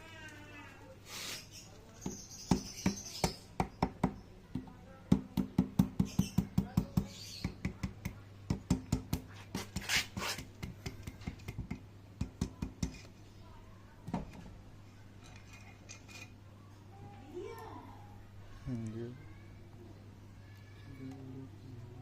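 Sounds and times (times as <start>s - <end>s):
short hiss: 1.0s - 1.5s
hand tools clicking and tapping on metal: 5.4s - 13.1s.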